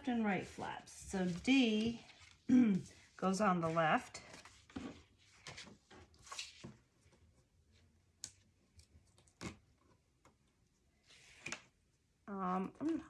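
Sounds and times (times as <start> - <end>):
paper rustle: 0.4 - 7.3.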